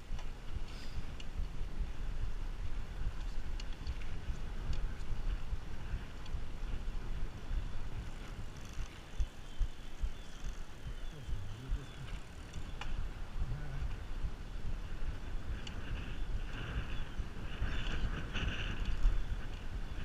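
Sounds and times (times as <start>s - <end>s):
wind buffeting microphone: 0.0s - 20.0s
faint tick: 6.2s - 6.4s.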